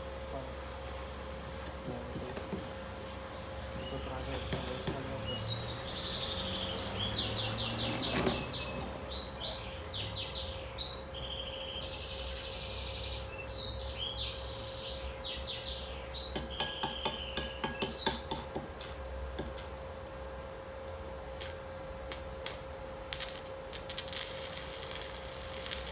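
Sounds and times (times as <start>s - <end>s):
birds chirping: 2.8s - 18.4s.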